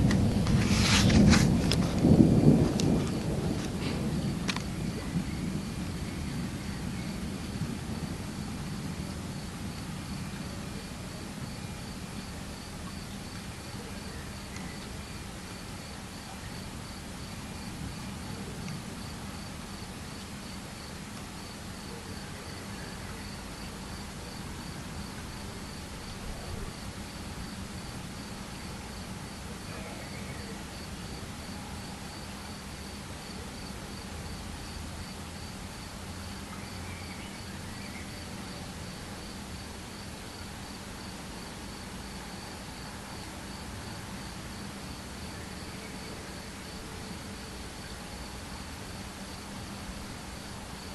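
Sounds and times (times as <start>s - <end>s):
distant thunder rumble: 0.0s - 15.8s
background hiss: 0.0s - 50.9s
cricket chirping: 1.3s - 50.9s.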